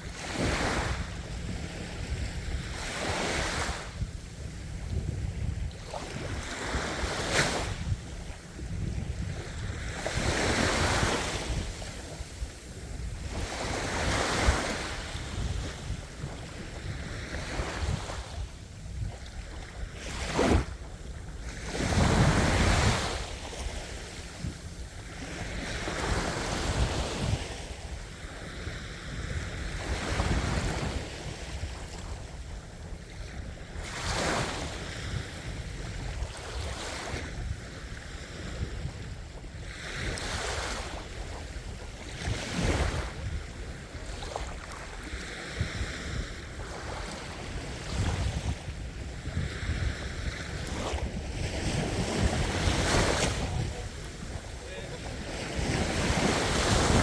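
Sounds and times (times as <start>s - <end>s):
ocean waves breaking on shore: 0.0s - 57.0s
wind rumble on microphone: 0.0s - 57.0s.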